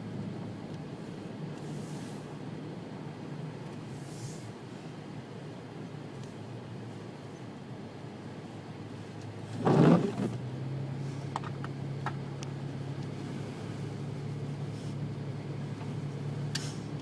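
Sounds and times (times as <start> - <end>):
vehicle engine starting and idling: 8.2 - 17.0.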